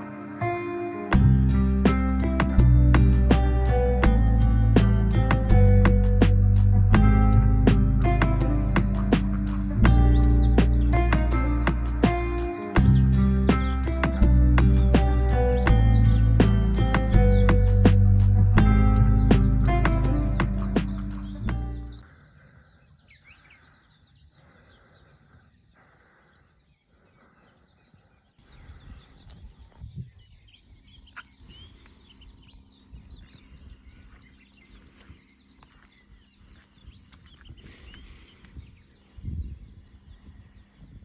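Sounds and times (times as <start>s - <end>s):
low rumbling noise: 1.2s - 22.0s
small birds chirping: 1.2s - 41.0s.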